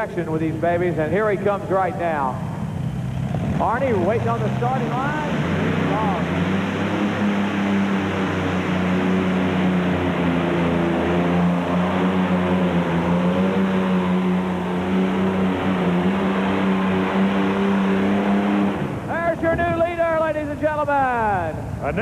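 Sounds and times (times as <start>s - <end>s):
tractor engine running under load: 0.0s - 22.0s.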